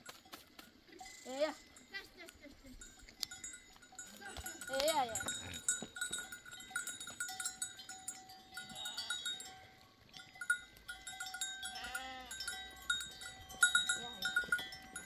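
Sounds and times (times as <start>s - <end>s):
animal bells clinking: 0.0s - 15.0s
sheep bleat: 4.2s - 5.9s, 8.6s - 9.4s, 11.6s - 12.7s.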